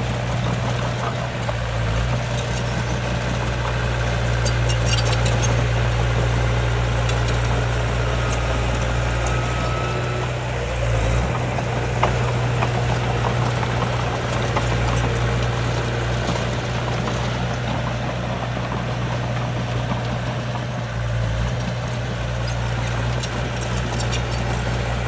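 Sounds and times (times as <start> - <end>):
heavy diesel engine running: 0.0 - 25.0
faint clicks and rattles: 21.5 - 25.0.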